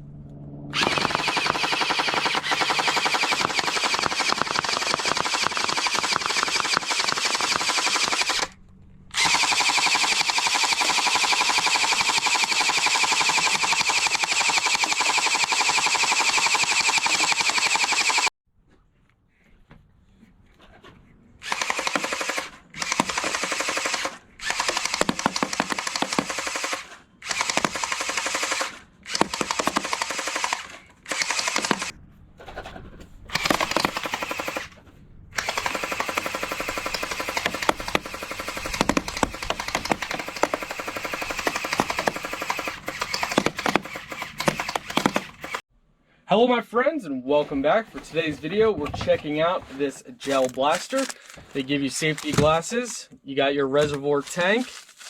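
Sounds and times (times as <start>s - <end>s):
toy blaster firing full auto: 0.8s - 18.3s, 21.4s - 31.9s, 33.3s - 34.8s, 35.4s - 45.6s.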